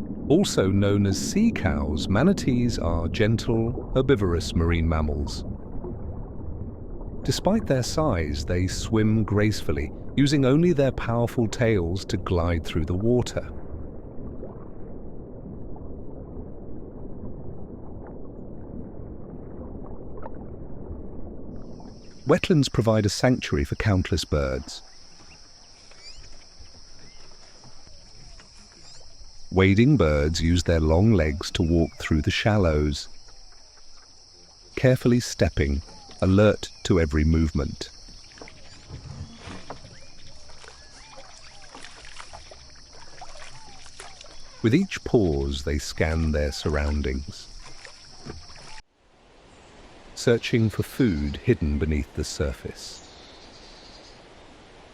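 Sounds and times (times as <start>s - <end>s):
muffled underwater rumble: 0.0s - 25.4s
water sloshing and splashing: 0.0s - 51.5s
high insect drone: 24.0s - 31.9s, 32.5s - 48.8s.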